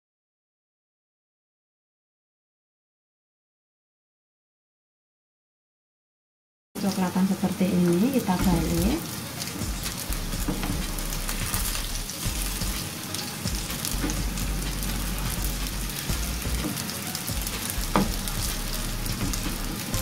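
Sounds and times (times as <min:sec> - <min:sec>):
chicken sizzling in oil: 0:06.8 - 0:20.0.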